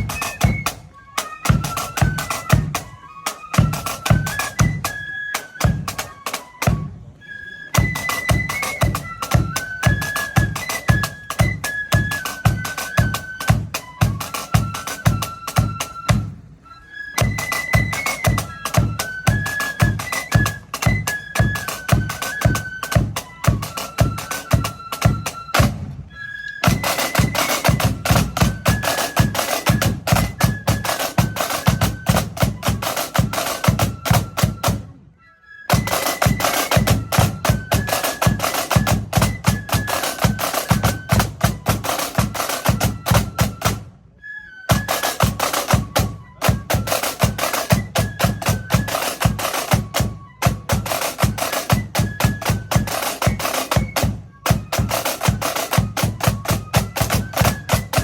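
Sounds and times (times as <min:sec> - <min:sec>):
snare drum rolls: 0:17.2 - 0:26.0, 0:26.6 - 0:35.0, 0:35.7 - 0:43.9, 0:44.7 - 0:58.0
high band melody: 0:26.6 - 0:31.8.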